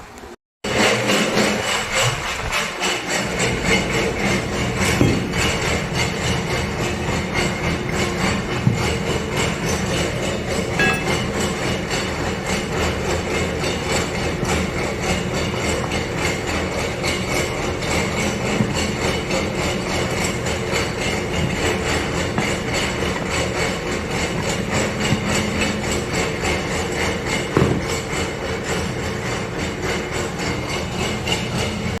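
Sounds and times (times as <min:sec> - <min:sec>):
machinery clattering: 0:00.7 - 0:32.0
knocks: 0:27.6 - 0:28.0.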